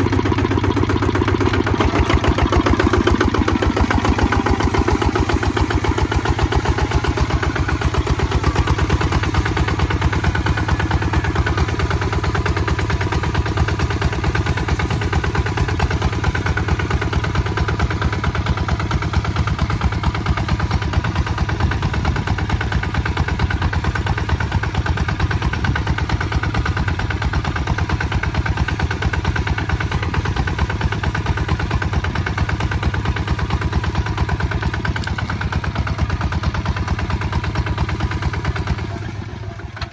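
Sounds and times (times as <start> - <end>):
diesel tractor engine chugging: 0.0 - 39.9.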